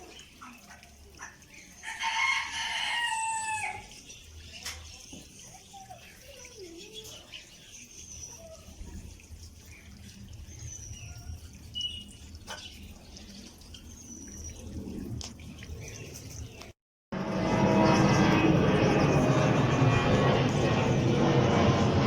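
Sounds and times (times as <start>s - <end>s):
steady low rumble: 14.4s - 22.0s.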